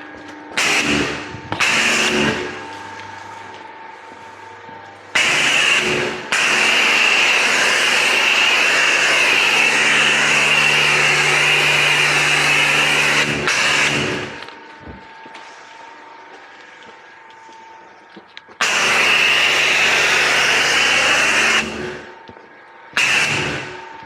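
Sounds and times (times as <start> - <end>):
pump humming: 0.0 - 24.0
pressure washer water jet hissing: 0.6 - 2.5, 5.2 - 14.4, 18.6 - 22.1, 23.0 - 23.8.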